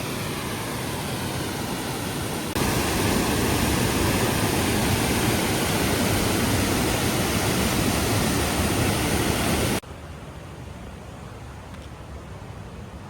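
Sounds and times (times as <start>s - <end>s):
waterfall rushing: 0.0s - 9.8s.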